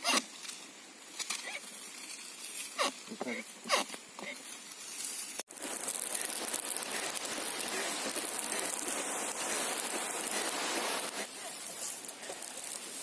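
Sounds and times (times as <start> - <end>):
spray pattering on leaves: 0.3 - 13.0
sprayer nozzle hissing: 5.5 - 13.0.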